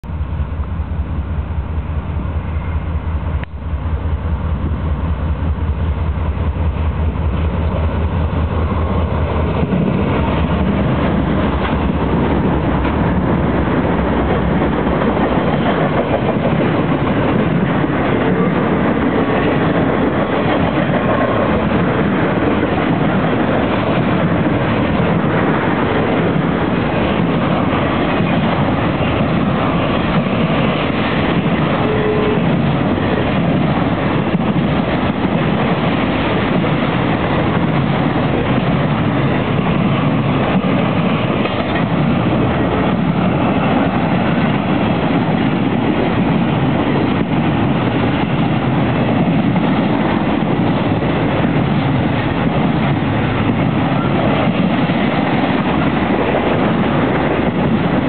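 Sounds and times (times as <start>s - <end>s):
diesel locomotive rumble: 0.0s - 58.0s
freight train rolling on rails: 0.0s - 58.0s.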